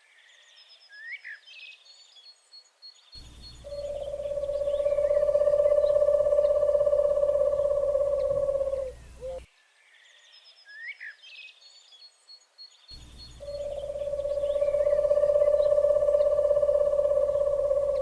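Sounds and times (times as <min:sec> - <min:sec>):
bird chirps: 0:00.6 - 0:09.5, 0:10.3 - 0:18.0
quick rising bird call: 0:03.7 - 0:09.4, 0:13.4 - 0:18.0.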